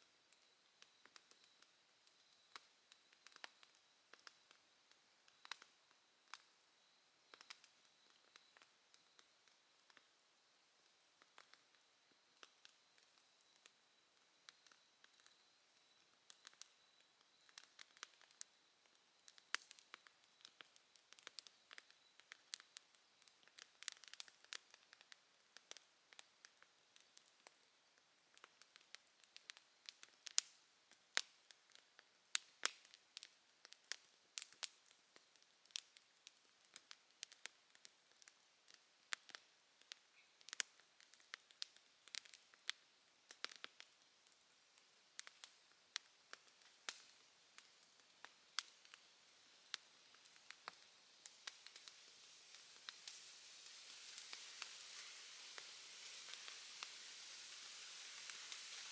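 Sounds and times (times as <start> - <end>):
faint insect trill: 0.0 - 58.9
bonfire crackling and popping: 0.2 - 58.9.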